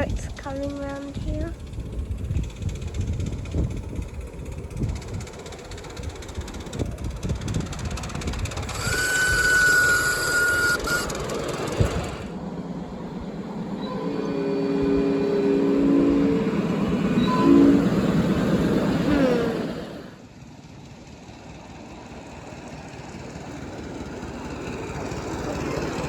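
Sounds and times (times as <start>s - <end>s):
miniature train clattering: 0.0s - 12.4s, 16.7s - 26.0s
steady high tone: 12.4s - 20.2s
chord of low tones: 13.4s - 19.4s.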